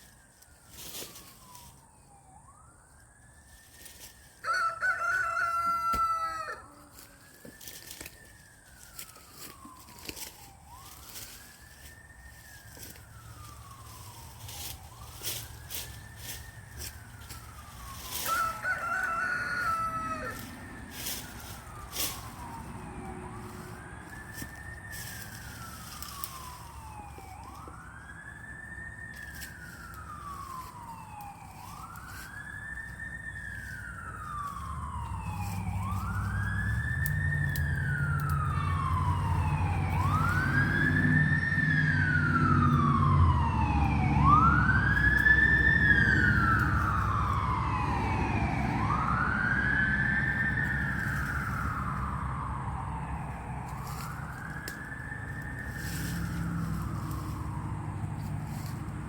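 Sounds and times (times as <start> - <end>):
emergency vehicle siren wailing: 0.0 - 59.0
vehicle engine rumble: 0.0 - 59.0
rooster crowing: 4.4 - 7.8, 16.8 - 25.3, 37.4 - 52.2.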